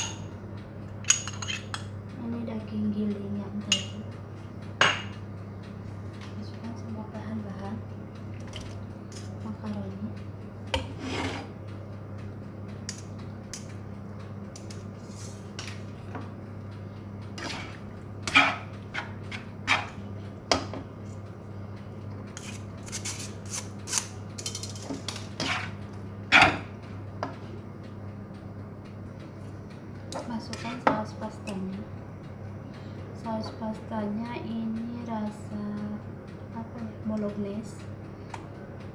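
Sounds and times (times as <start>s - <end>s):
steady low hum: 0.0s - 38.9s
utensil scraping a mixing bowl: 10.8s - 11.6s, 17.4s - 20.0s, 25.4s - 25.8s.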